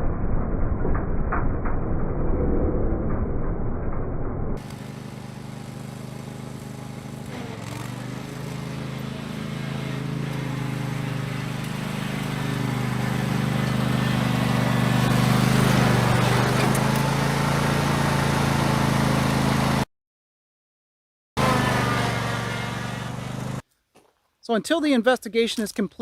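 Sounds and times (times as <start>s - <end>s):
lawn mower engine running: 4.6s - 19.8s, 21.4s - 23.6s.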